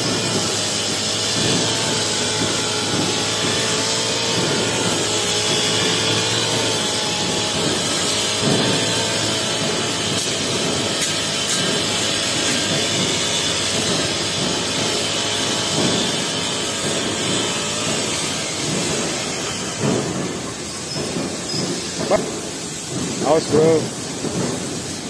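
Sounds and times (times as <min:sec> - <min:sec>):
brush cutter cutting grass: 0:00.0 - 0:22.4.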